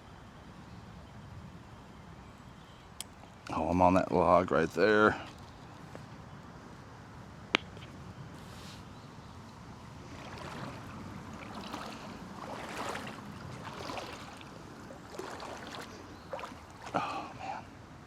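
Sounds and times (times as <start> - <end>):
water sloshing and splashing: 9.8 - 17.5.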